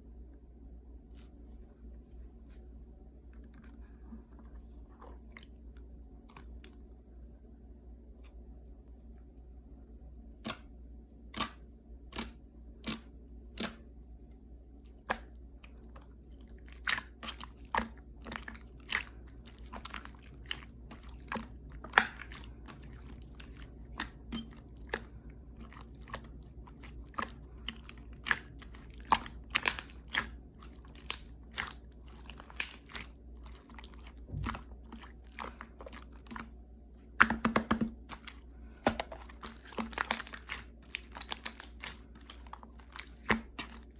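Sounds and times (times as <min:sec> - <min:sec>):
slime squeezed wet clicks: 0:10.4 - 0:10.6, 0:11.4 - 0:13.8
slime crackling: 0:15.7 - 0:36.5, 0:37.1 - 0:43.9.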